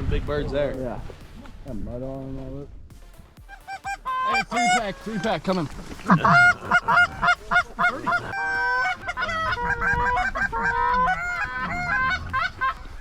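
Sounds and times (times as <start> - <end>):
geese honking and clucking: 3.5 - 13.0.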